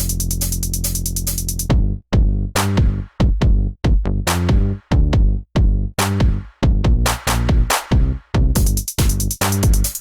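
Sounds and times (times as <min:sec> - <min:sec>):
electronic music with drum-machine beat: 0:00.0 - 0:01.7, 0:07.5 - 0:10.0.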